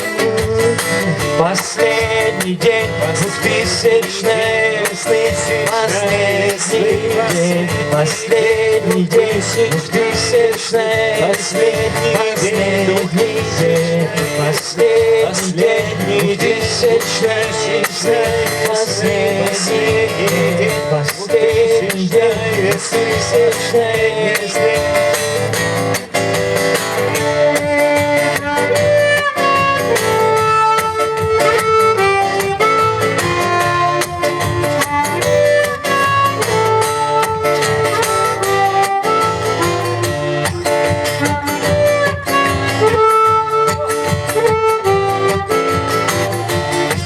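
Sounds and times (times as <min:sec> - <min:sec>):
man singing: 0:00.0 - 0:25.6
guitar: 0:00.0 - 0:47.0
live band playing: 0:00.0 - 0:47.0.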